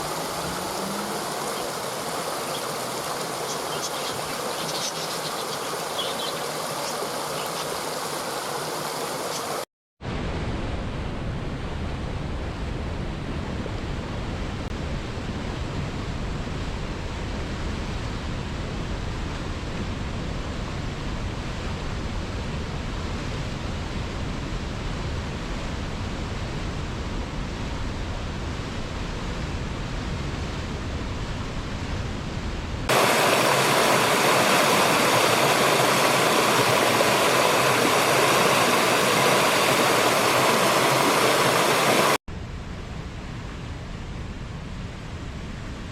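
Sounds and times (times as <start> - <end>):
waterfall rushing: 0.0 - 9.7, 32.9 - 42.2.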